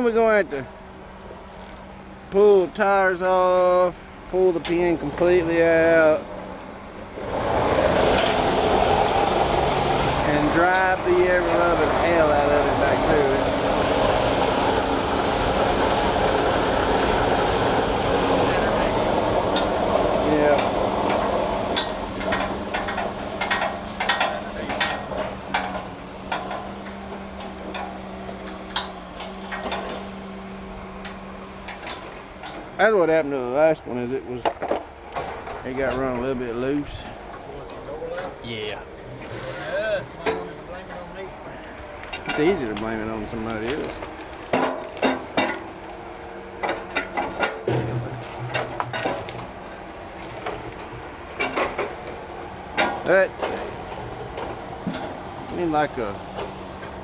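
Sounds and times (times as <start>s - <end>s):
hand tools clicking on machinery: 1.4s - 1.9s, 3.3s - 3.8s, 19.5s - 30.0s, 31.0s - 32.7s.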